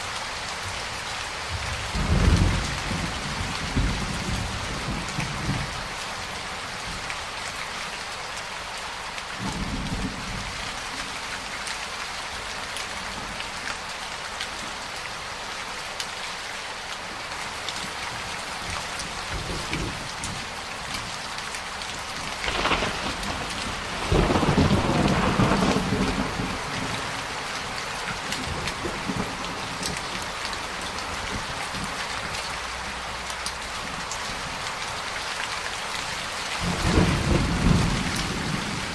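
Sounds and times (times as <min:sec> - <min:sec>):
heavy rain: 0:00.0 - 0:38.9
thunder crack: 0:22.4 - 0:26.6
thunder rumbling: 0:22.4 - 0:27.3, 0:36.6 - 0:38.9.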